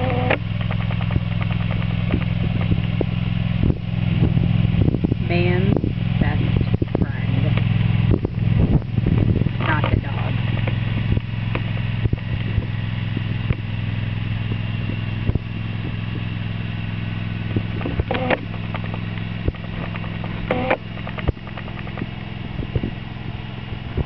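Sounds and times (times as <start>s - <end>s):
knocks and clatter: 0.0s - 4.4s, 17.4s - 23.0s
garden tractor engine running: 0.0s - 24.0s.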